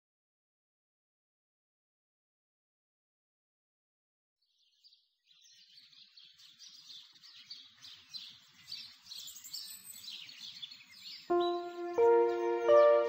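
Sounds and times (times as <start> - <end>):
birds chirping: 5.3 - 13.0.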